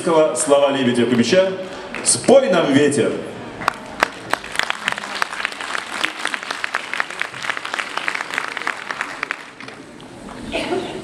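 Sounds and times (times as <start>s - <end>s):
audience clapping: 1.6s - 2.4s, 3.6s - 10.0s.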